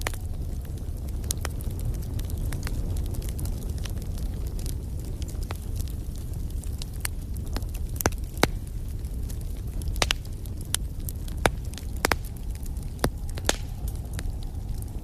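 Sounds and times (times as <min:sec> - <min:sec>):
low rumble of flame: 0:00.0 - 0:15.0
wood fire crackling and popping: 0:00.0 - 0:15.0.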